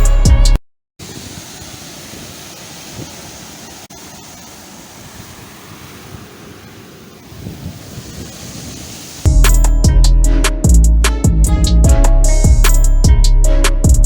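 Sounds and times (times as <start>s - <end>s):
sea waves washing in: 1.0s - 9.3s
wind on microphone: 5.0s - 9.3s.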